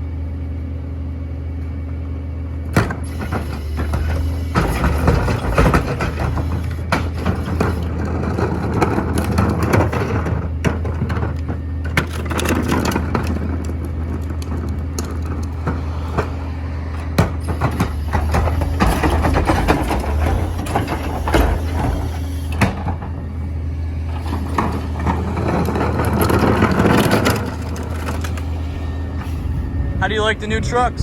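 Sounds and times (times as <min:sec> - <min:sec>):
garbage truck engine running: 0:00.0 - 0:31.0
packer clanking and knocking: 0:03.9 - 0:16.4, 0:17.2 - 0:23.2, 0:24.2 - 0:28.5.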